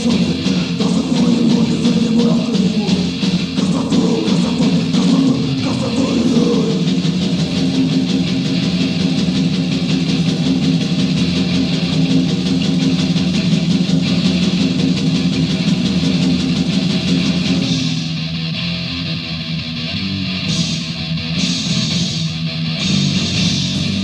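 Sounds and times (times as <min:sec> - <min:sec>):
fast dense drumming: 0:00.0 - 0:18.3
distorted guitars grinding riff: 0:00.0 - 0:24.0.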